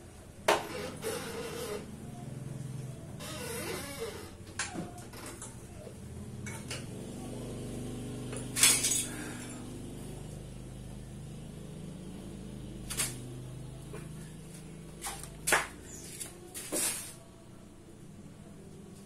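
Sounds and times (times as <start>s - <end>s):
steady low hum: 5.7s - 19.0s
metal tools clinking and knocking: 8.4s - 9.6s.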